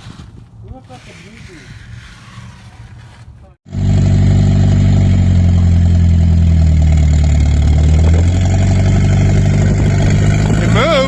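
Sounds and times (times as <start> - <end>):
turbocharged car engine running: 3.7 - 11.0.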